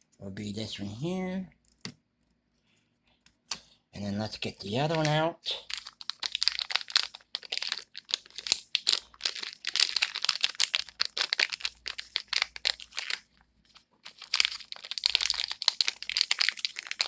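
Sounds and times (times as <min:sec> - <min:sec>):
plastic packaging crinkling: 0:04.2 - 0:17.0.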